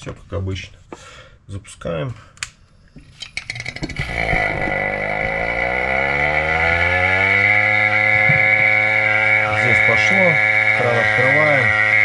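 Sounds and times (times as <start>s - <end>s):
vacuum pump motor humming: 3.8s - 12.0s.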